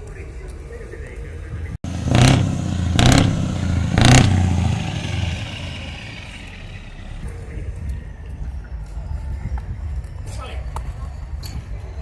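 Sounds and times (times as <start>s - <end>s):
truck engine idling: 1.8s - 7.2s
truck engine revving: 1.8s - 7.3s.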